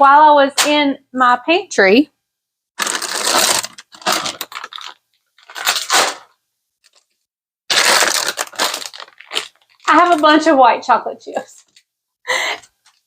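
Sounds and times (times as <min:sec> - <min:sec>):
plastic bags crinkling: 0:02.8 - 0:10.6.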